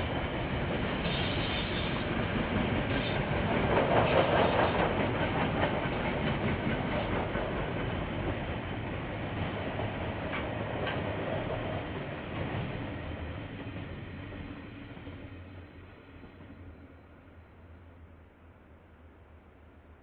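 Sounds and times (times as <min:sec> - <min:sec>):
train wheels clicking over rail joints: 0:00.2 - 0:12.8.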